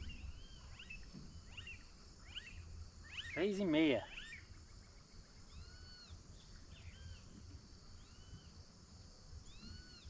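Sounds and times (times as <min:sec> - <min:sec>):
high insect trill: 0:00.0 - 0:10.0.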